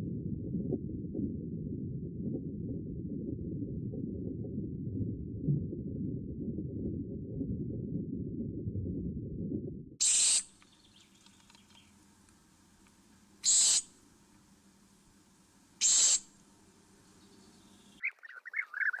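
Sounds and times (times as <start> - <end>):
muffled low rumbling: 0.0 - 10.0
animal hissing screech: 10.0 - 10.5, 13.4 - 13.9, 15.8 - 16.3.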